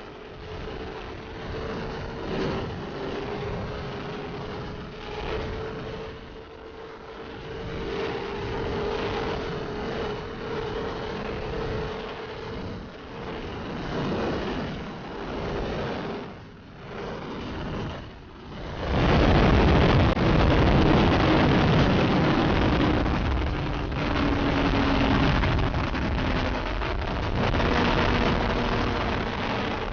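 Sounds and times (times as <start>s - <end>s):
wind noise: 0.0s - 29.9s
motorcycle engine: 19.0s - 29.9s.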